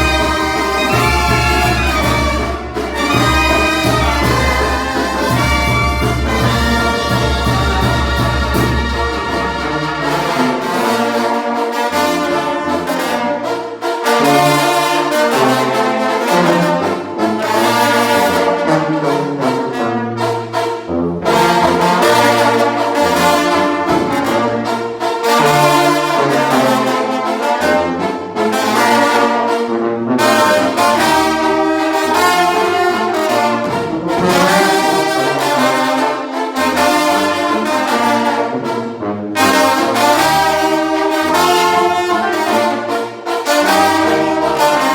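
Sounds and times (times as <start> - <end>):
brass band playing: 0.0 - 44.9.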